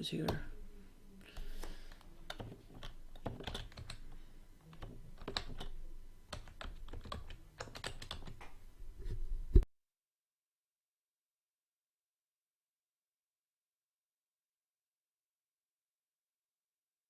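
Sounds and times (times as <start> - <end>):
keyboard typing clicks: 1.4 - 8.6.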